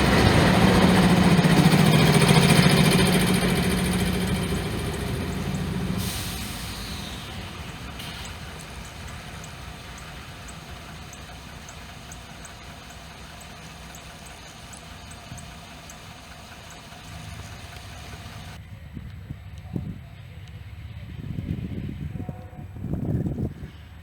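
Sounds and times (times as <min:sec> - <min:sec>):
steel wheels rumbling on rails: 0:00.0 - 0:24.0
faint regular ticks: 0:02.4 - 0:18.5.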